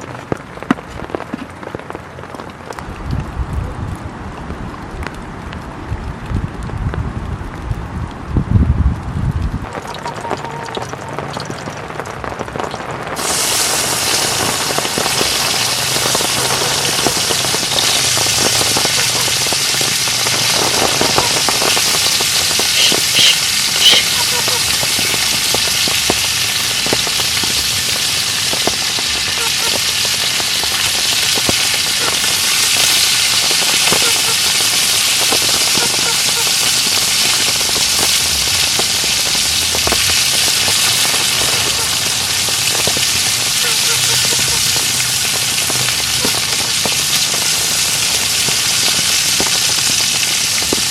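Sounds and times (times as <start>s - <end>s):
steak sizzling in a pan: 13.2s - 50.9s.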